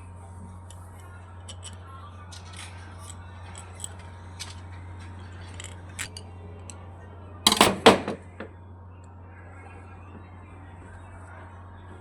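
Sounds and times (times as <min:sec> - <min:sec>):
steady low hum: 0:00.0 - 0:12.0
metal tools clicking and clinking: 0:01.4 - 0:06.8, 0:07.5 - 0:08.5
metallic clatter: 0:01.5 - 0:06.2, 0:07.5 - 0:08.5.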